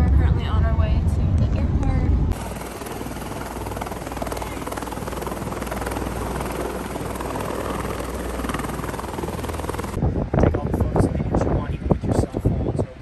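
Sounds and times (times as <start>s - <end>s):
helicopter engine and rotor noise: 1.7s - 10.1s.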